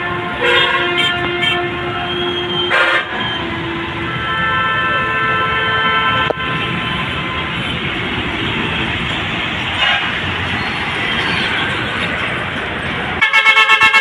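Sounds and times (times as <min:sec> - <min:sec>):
vehicle horns blaring: 0:00.0 - 0:07.9, 0:09.8 - 0:10.3, 0:13.2 - 0:14.0
passing traffic: 0:00.0 - 0:14.0.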